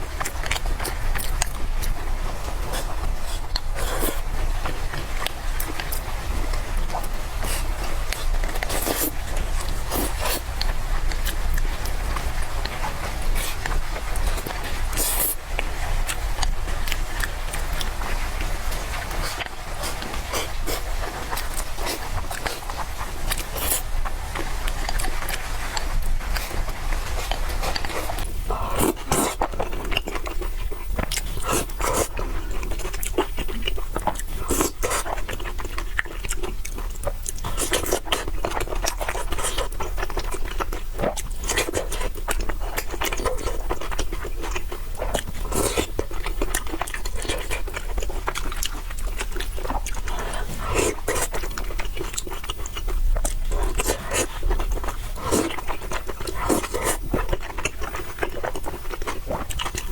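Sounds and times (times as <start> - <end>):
wet chewing: 0.0 - 59.9
slurping noodles: 0.8 - 10.5, 13.4 - 15.4, 45.1 - 52.6, 53.4 - 59.7.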